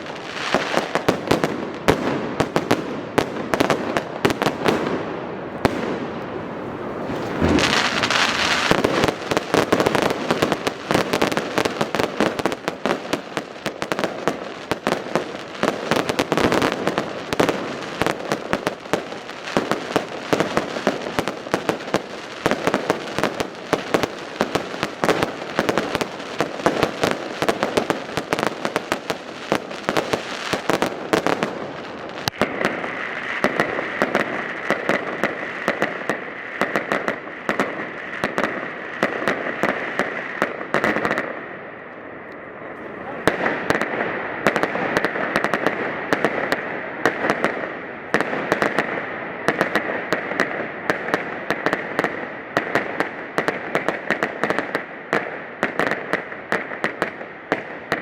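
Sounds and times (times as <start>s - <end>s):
fireworks crackling and bangs: 0.0s - 58.0s
firework high whistle: 5.8s - 11.7s.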